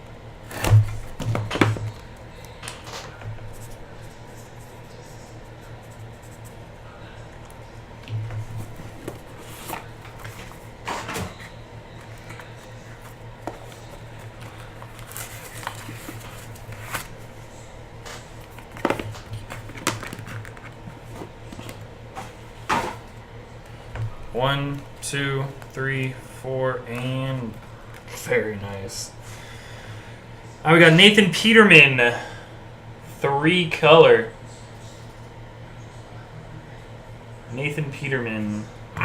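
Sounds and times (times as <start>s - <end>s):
steady low hum: 0.0s - 39.0s
cardboard and wrapping rustling: 8.4s - 17.3s.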